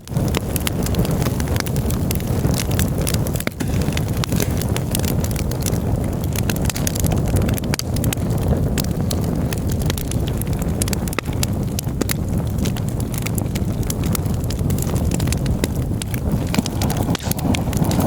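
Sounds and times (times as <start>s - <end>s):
campfire crackling and popping: 0.0s - 18.0s
low rumble: 15.2s - 18.0s.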